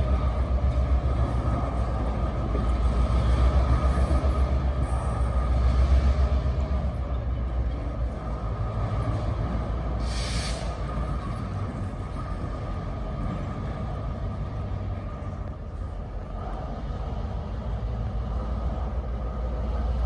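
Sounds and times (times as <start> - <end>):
diesel locomotive engine rumbling: 0.0 - 20.0
air hiss: 10.0 - 10.8.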